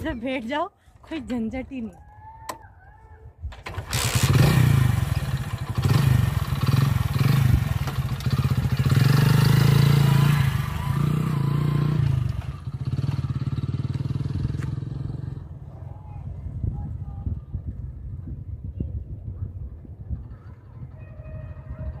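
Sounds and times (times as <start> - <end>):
motorcycle engine kick-started: 3.5 - 15.3
motorcycle engine revving: 3.6 - 15.8.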